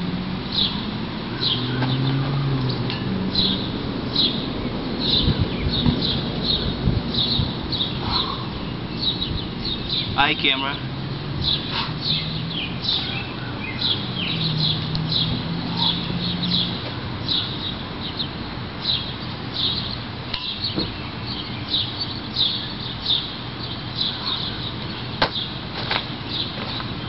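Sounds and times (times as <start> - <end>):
small bird chirping: 1.4 - 10.6.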